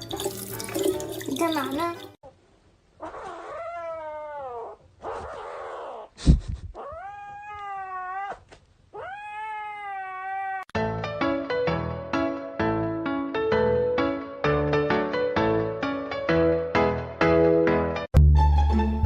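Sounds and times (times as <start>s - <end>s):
cat yowling: 3.0s - 6.1s, 6.8s - 10.7s.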